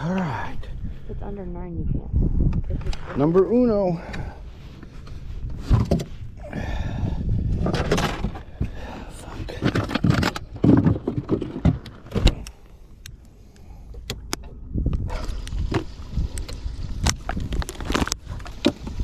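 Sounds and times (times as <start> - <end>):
low rumble: 0.0 - 19.0
fishing gear knocking and rattling: 7.5 - 13.2.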